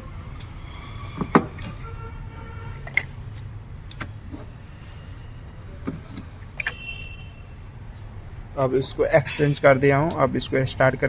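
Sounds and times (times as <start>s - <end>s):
clicks and knocks of handled parts: 2.8s - 4.5s.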